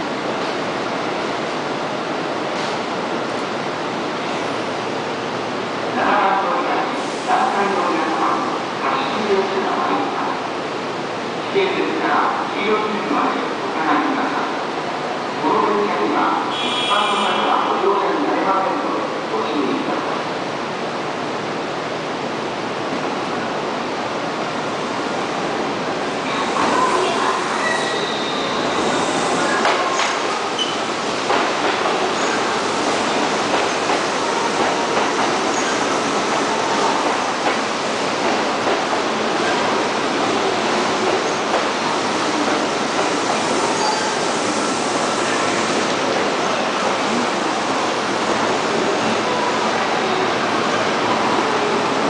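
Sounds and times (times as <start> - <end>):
train wheels on track: 0.0 - 5.9, 24.6 - 52.0.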